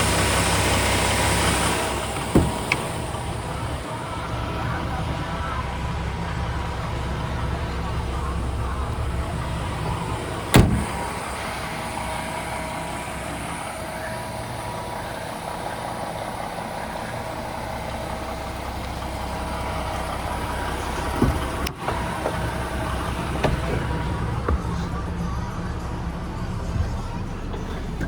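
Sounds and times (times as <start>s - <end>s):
diesel truck engine idling: 0.0s - 28.0s
thump: 2.2s - 2.9s, 10.5s - 11.1s.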